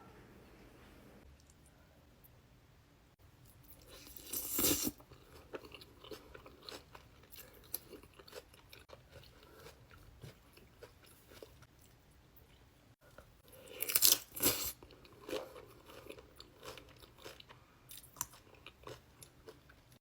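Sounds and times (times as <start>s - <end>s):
crunchy chewing: 3.4s - 11.9s, 12.5s - 19.8s.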